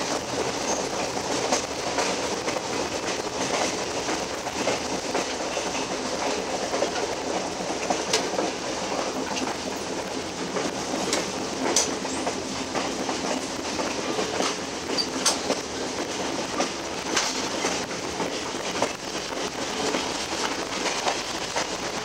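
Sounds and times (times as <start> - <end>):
train wheels rumbling on rails: 0.0 - 22.0
sharp wheel clacks: 11.1 - 15.6.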